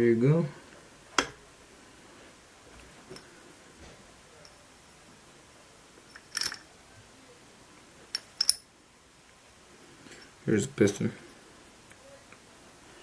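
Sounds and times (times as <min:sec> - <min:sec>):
metallic clicks of engine parts: 0:06.1 - 0:06.7, 0:08.1 - 0:08.7.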